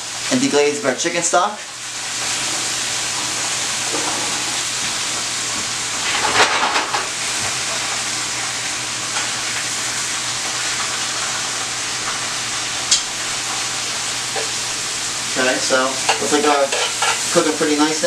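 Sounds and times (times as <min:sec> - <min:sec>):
food sizzling in a skillet: 0:00.0 - 0:18.0
stirring in the pan: 0:16.0 - 0:17.4.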